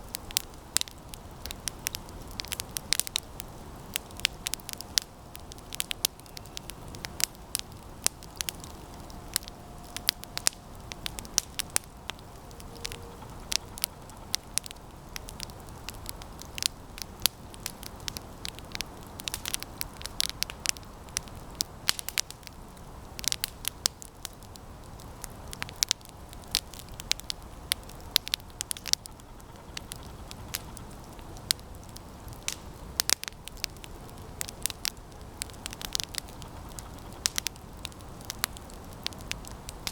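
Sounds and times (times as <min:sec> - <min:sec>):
campfire crackling: 0:00.0 - 0:39.9
low rush of flames: 0:00.0 - 0:39.9
sharp pops and snaps: 0:25.5 - 0:39.9.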